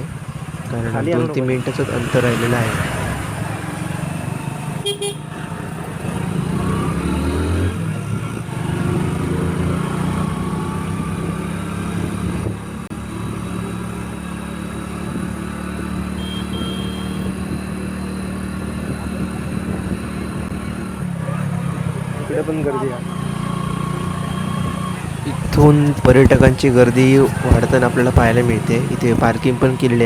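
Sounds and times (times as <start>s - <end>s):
road noise: 0.0s - 30.0s
motorcycle engine running: 7.8s - 22.3s, 23.0s - 30.0s.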